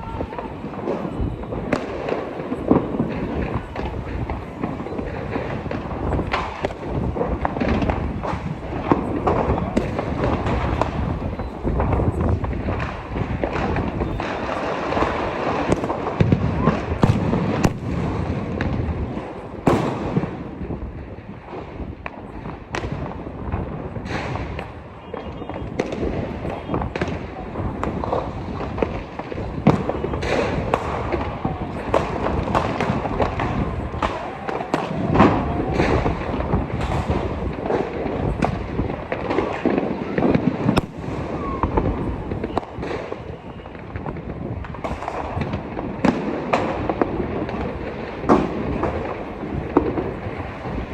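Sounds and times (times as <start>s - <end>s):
people's voices: 0.0s - 18.2s, 23.6s - 44.0s
firecrackers banging: 0.0s - 50.9s
rumble of explosions: 0.0s - 50.9s.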